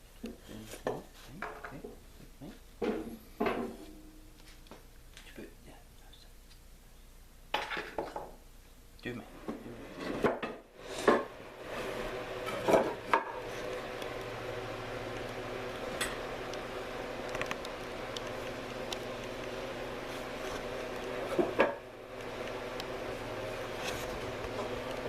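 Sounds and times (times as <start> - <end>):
tools and wood clanking: 2.8 - 4.0, 7.5 - 8.4, 12.4 - 13.5, 21.2 - 21.9
steady low hum: 8.4 - 25.0.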